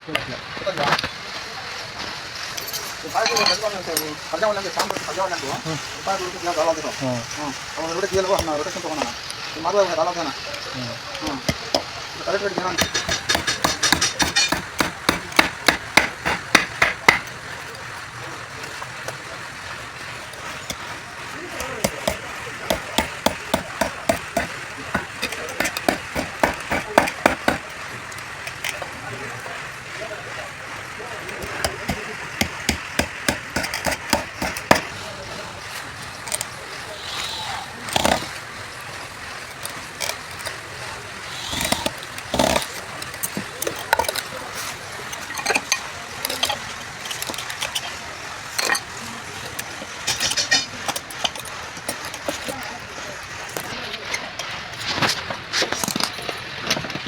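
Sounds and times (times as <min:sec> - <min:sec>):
hammer driving nails into wood: 0:08.1 - 0:08.6, 0:11.3 - 0:11.9, 0:12.6 - 0:17.4, 0:20.2 - 0:27.8, 0:31.4 - 0:35.0, 0:36.3 - 0:38.4, 0:41.3 - 0:44.2.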